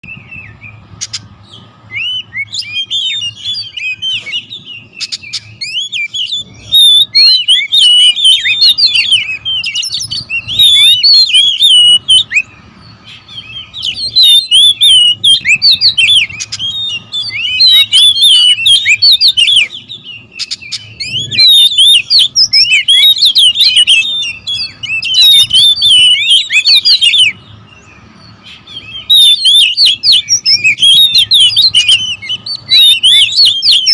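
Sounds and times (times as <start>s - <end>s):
birds singing and chattering: 0.0s - 33.9s.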